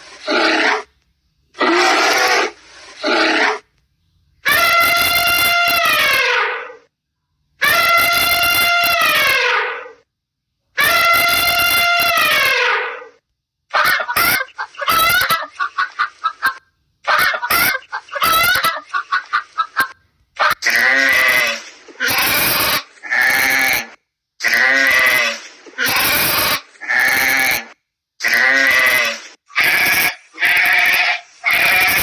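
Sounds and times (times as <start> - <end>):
choppy animal calls: 4.4 - 6.9, 7.6 - 10.0, 10.8 - 32.0
animal bleating: 4.5 - 6.4, 7.6 - 9.5, 10.8 - 12.7, 20.6 - 32.0.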